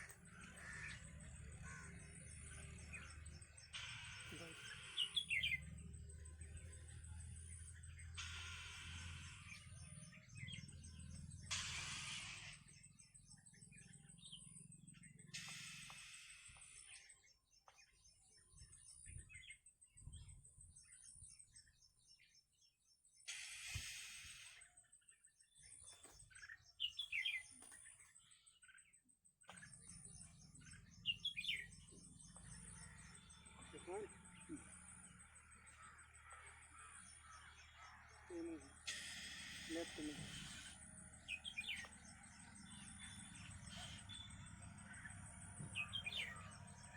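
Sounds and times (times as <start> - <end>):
small birds chirping: 0.0 - 46.9
hiss: 23.3 - 24.6.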